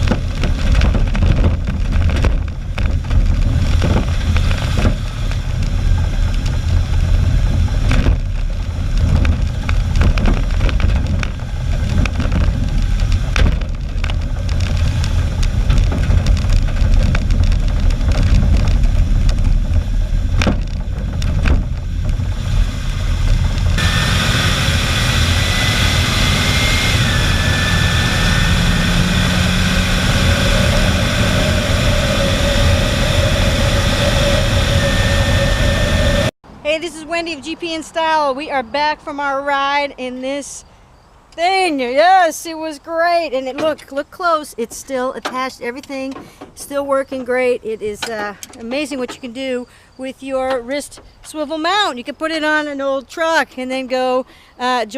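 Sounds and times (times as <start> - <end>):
knocks and rattles from bumps: 0.0 - 32.6, 43.4 - 49.6
pickup engine and road noise: 0.0 - 54.9
wind rumble: 0.0 - 54.9.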